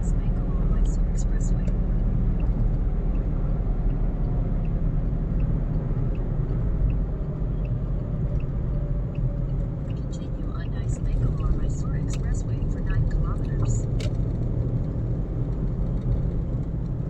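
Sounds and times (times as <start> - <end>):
car engine and tyre rumble: 0.0 - 17.0
faint ticks: 5.4 - 10.7.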